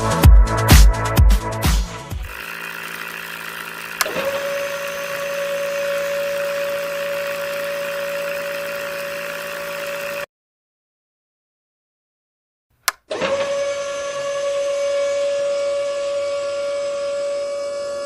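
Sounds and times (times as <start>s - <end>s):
electric motor whining: 2.2s - 10.3s
motor switch click: 2.3s - 10.3s, 12.8s - 13.4s.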